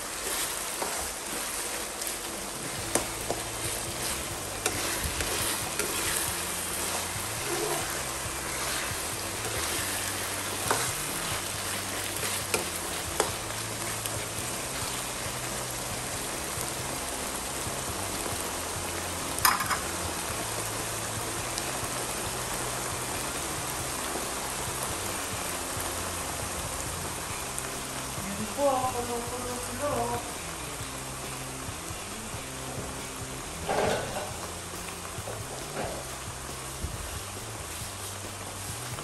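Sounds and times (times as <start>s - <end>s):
filling sizzling in a frying pan: 0.0s - 39.0s.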